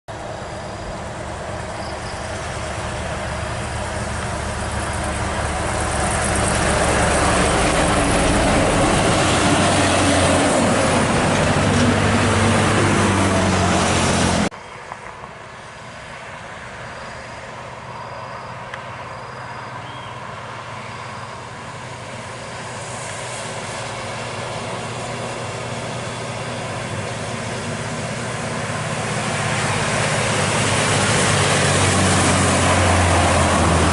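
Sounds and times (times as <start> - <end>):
heavy vehicle approaching: 0.1 - 33.9
heavy vehicle engine passing: 0.1 - 33.9.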